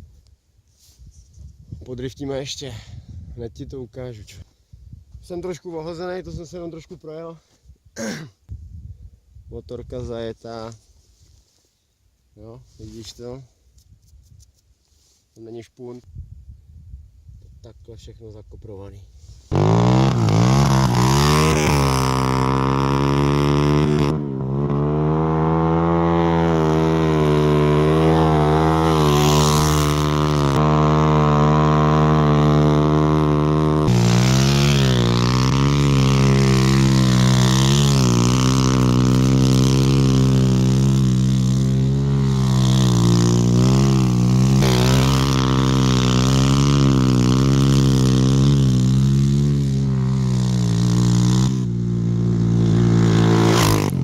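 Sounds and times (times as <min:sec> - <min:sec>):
dirt bike engine revving: 0:19.5 - 0:54.0.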